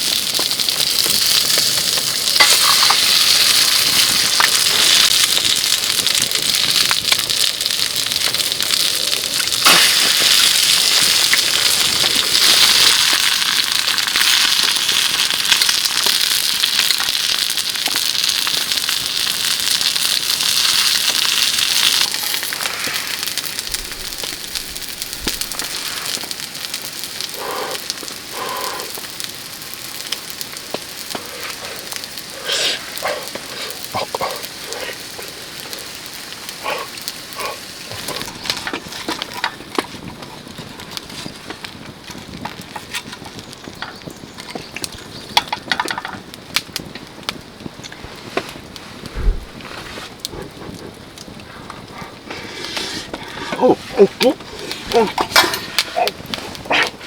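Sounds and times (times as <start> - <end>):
food sizzling in a pan: 0.0 - 40.1.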